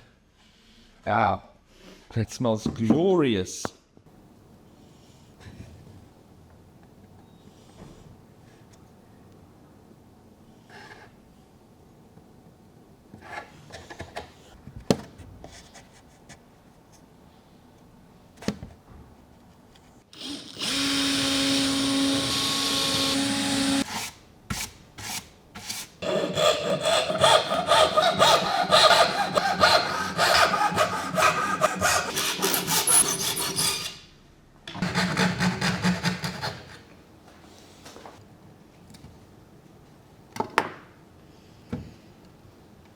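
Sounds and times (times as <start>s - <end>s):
woodworking tool whirring: 20.2s - 24.2s, 26.0s - 34.0s
rapid rasping strokes on wood: 26.0s - 33.8s.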